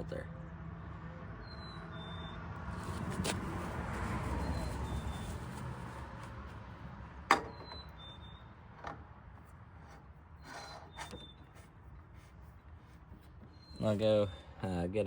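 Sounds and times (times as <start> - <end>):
short scraping rub: 2.7 - 6.3, 9.8 - 13.9
quiet rubbing and handling noises: 2.7 - 6.7, 9.3 - 14.6.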